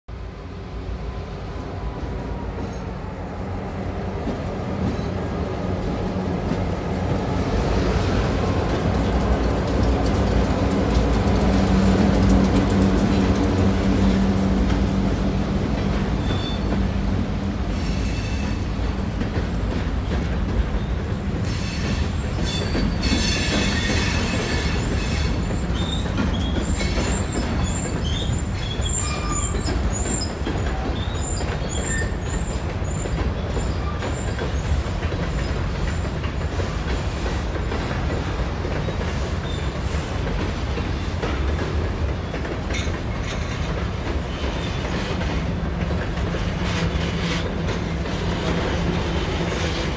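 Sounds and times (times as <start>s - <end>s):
train wheels rumbling on rail: 0.1s - 49.9s
wheel squeal: 16.2s - 16.8s, 20.8s - 34.7s.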